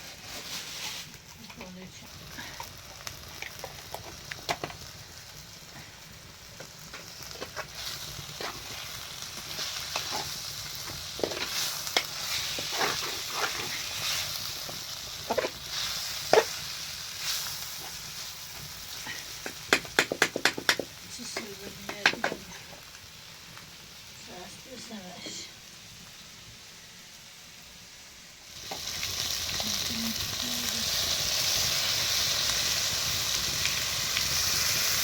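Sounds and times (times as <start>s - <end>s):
utensil scraping a pan: 0.0s - 1.2s, 7.3s - 16.6s
food sizzling in a pan: 0.0s - 35.0s.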